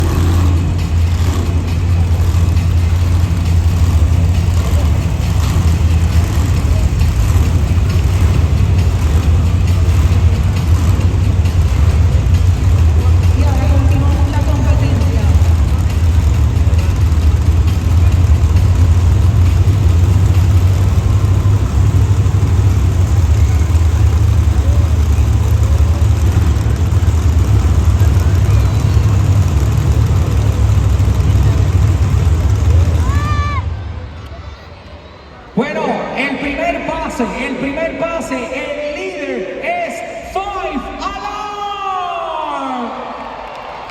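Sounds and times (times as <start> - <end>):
truck engine low rumble: 0.0 - 34.9
arena crowd noise: 0.0 - 43.9.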